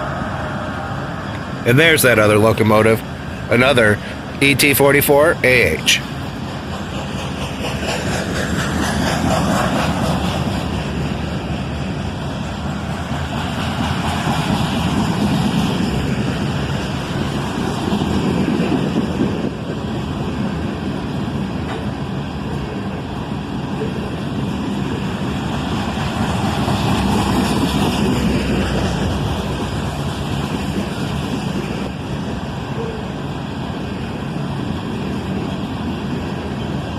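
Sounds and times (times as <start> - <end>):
diesel locomotive engine rumble: 0.0 - 36.9.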